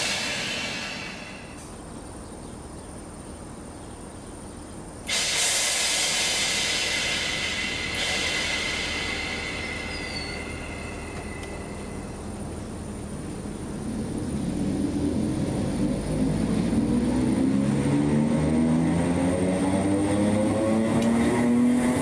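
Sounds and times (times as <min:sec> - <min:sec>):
loud hiss with high squeal: 0:00.0 - 0:01.6, 0:05.1 - 0:12.7
train low rumble: 0:00.0 - 0:22.0.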